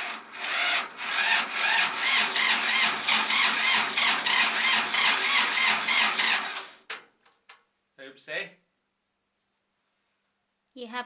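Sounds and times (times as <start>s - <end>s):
tractor engine cranking: 0.0s - 7.0s.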